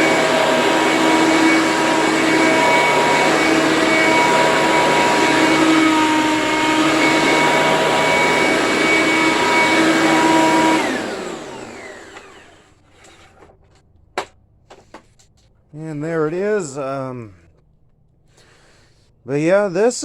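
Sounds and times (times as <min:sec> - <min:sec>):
vacuum motor winding down: 0:00.0 - 0:12.8
vacuum cleaner running: 0:00.0 - 0:13.2.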